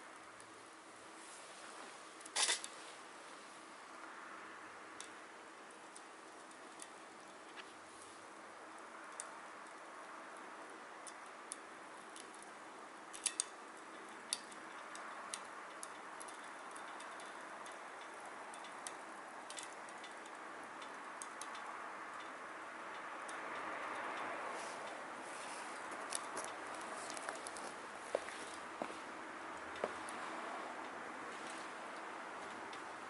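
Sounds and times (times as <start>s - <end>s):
wood fire hissing: 0.6s - 4.6s, 7.6s - 13.1s, 24.4s - 30.4s
fire crackles and pops: 4.9s - 24.0s, 25.2s - 30.3s.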